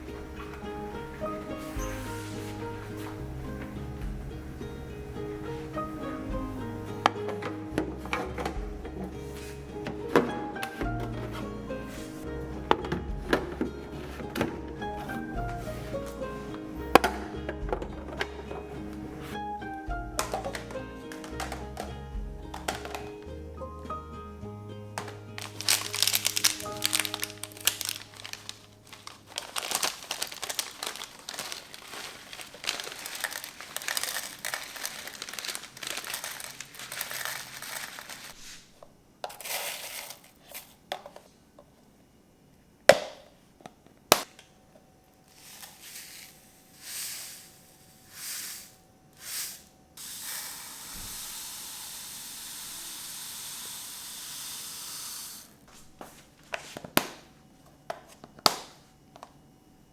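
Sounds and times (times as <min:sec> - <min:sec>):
packaging crinkling: 0:25.4 - 0:38.7
steady hiss: 0:45.2 - 0:56.4.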